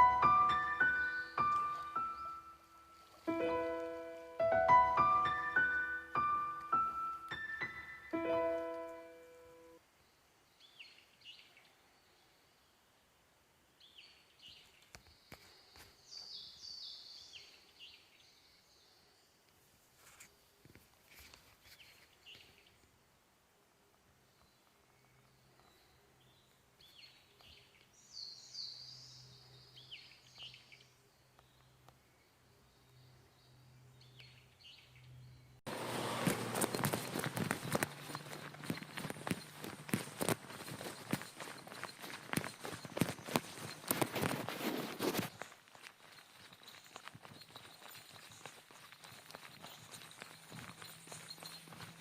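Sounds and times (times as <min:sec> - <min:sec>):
bird chirps: 0:00.0 - 0:09.8, 0:36.5 - 0:52.0
piano notes: 0:00.0 - 0:09.8.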